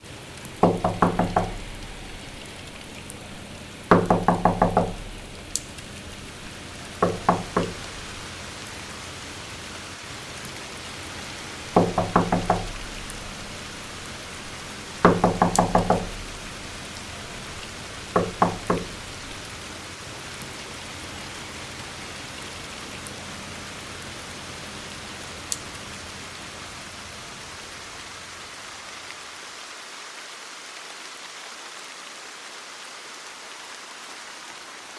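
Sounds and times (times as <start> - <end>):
rain-like hiss: 0.0 - 34.9
rapid hollow knocking: 0.6 - 8.3, 11.6 - 19.5.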